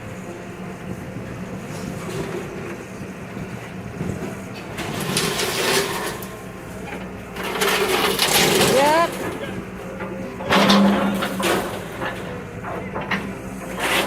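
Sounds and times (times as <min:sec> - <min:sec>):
excavator diesel engine running: 0:00.0 - 0:14.0
scraping and crunching debris: 0:07.0 - 0:14.0.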